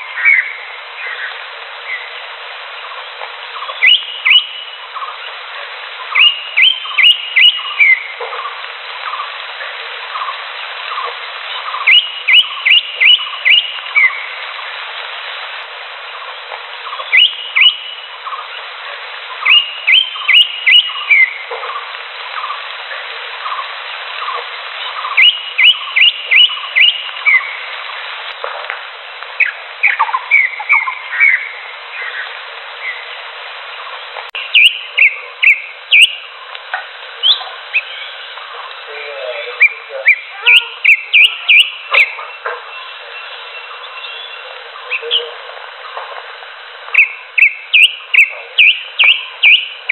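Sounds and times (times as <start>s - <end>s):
bird whistling song: 0.0s - 1.3s, 3.6s - 5.1s, 6.1s - 8.2s, 11.5s - 14.3s, 16.8s - 18.4s, 19.4s - 21.4s, 24.9s - 27.6s, 29.4s - 33.0s, 34.4s - 36.3s, 37.2s - 38.3s, 39.5s - 45.3s, 46.9s - 49.9s.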